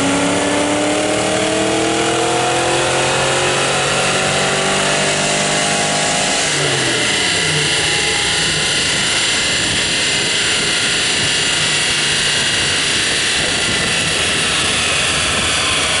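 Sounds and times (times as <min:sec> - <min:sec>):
loud steady rushing noise: 0:00.0 - 0:16.0
car engine idling: 0:06.3 - 0:16.0.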